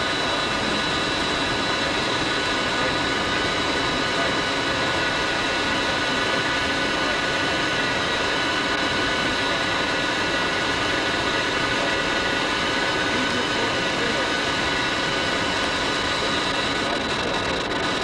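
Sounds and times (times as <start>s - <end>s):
engine running: 0.0s - 18.0s
high whining tones: 0.0s - 18.0s.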